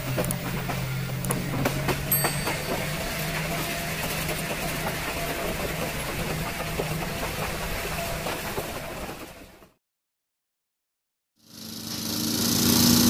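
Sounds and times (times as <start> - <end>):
wheels clicking on rails: 0.0 - 9.7
train rumbling: 0.0 - 9.8.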